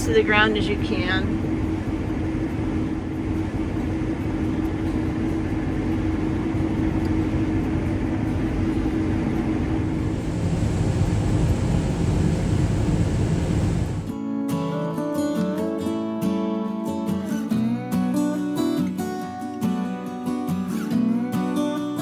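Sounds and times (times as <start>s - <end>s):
combine harvester droning: 0.0s - 14.1s.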